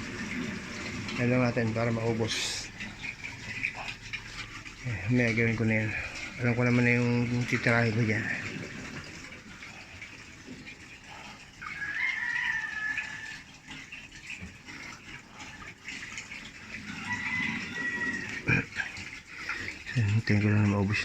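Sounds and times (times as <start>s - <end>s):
washing machine draining water: 0.0s - 21.0s
rooster crowing: 11.6s - 13.5s, 16.9s - 18.5s.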